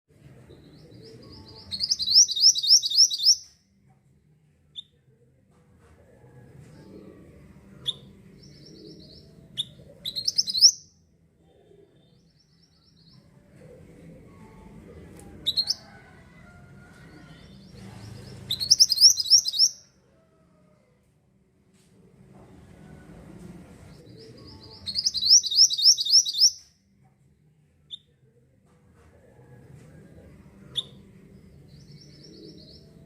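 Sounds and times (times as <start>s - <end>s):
bird singing high notes: 1.8s - 3.4s, 24.9s - 26.6s
faint low rumble: 3.8s - 25.5s.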